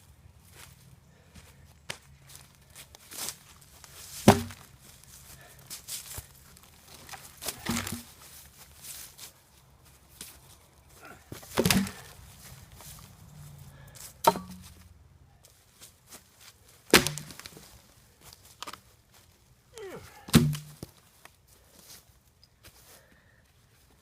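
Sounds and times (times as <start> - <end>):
sharp wooden knocks: 4.3 - 4.6, 11.6 - 12.1, 14.2 - 14.7.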